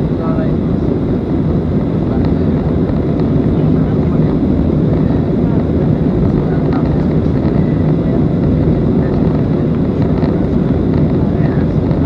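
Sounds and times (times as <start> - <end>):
airflow over fuselage: 0.0 - 12.0
jet engine cabin noise: 0.0 - 12.0.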